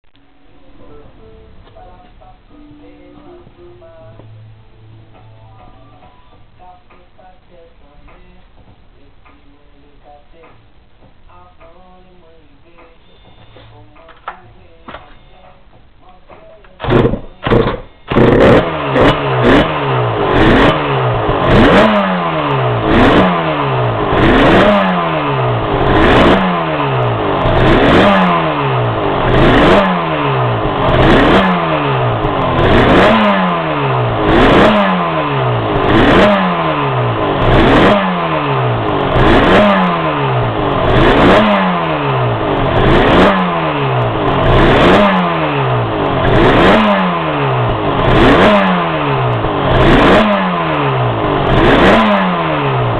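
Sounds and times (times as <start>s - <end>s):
two-stroke engine blipping: 16.8s - 52.9s.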